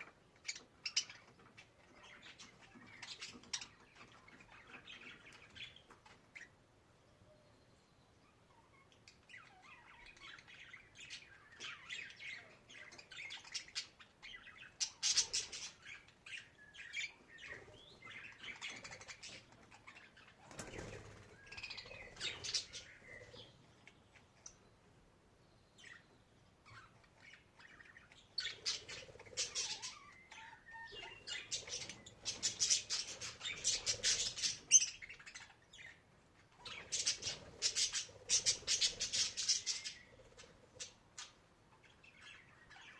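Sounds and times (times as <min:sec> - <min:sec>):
budgerigar chirping and warbling: 0:28.4 - 0:36.0.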